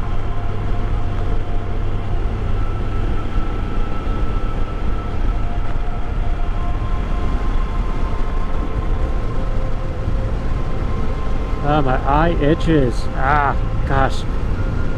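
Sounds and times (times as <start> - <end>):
motorcycle engine cruising: 0.0 - 14.9.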